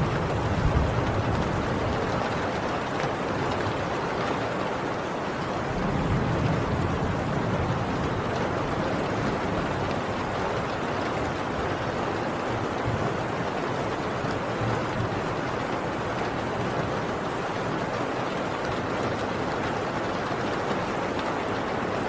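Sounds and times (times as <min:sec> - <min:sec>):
distant thunder rumble: 0:00.0 - 0:02.7, 0:05.6 - 0:11.4
heavy rain on a tin roof: 0:00.0 - 0:22.0.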